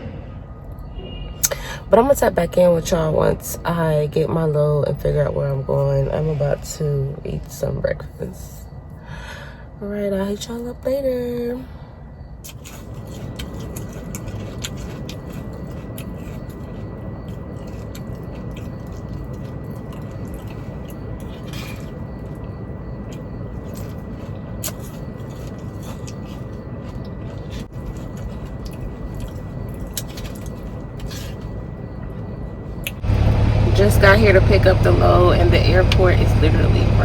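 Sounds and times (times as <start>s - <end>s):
thin steady whine: 0.0s - 37.0s
truck engine rumble in cab: 12.9s - 37.0s.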